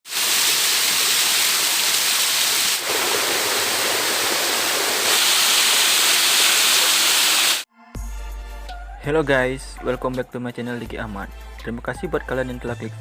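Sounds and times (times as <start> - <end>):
waterfall rushing: 0.1 - 7.6.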